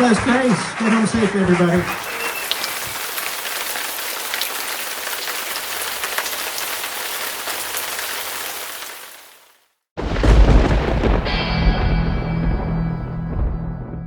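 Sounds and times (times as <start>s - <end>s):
rain hissing: 1.7s - 11.4s.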